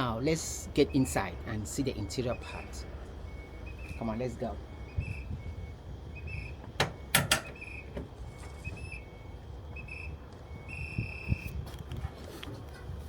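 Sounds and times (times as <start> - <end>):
short high whistle-like tones: 4.7 - 11.6
sharp clicks of door latch: 6.7 - 8.1.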